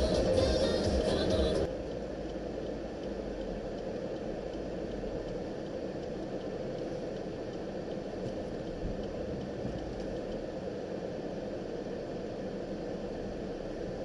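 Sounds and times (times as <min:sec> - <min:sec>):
music: 0:00.0 - 0:01.7
car engine and road noise: 0:00.0 - 0:14.0.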